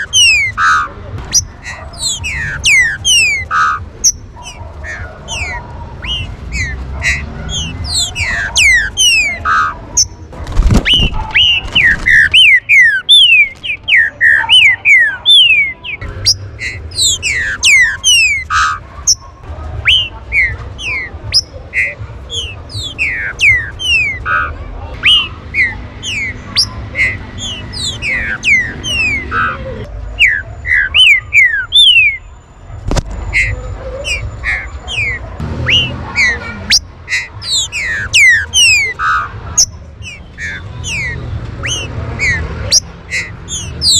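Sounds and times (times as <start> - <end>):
birds whistling downward: 0.0 - 29.6, 30.2 - 32.3, 33.3 - 43.9.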